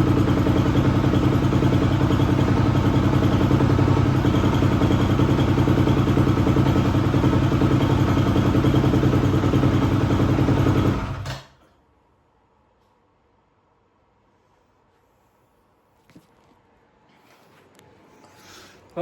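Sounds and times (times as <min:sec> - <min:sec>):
dirt bike engine idling: 0:00.0 - 0:11.2.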